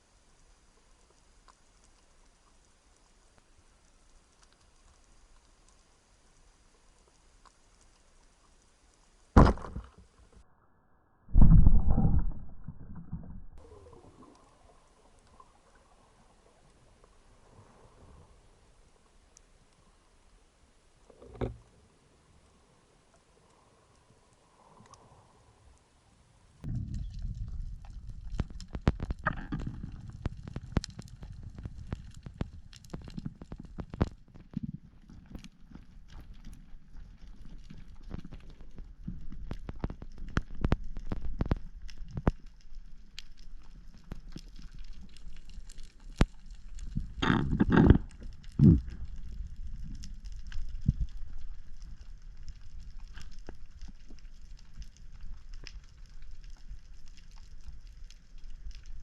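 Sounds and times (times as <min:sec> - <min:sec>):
underwater rumble of moving water: 0:11.2 - 0:59.0.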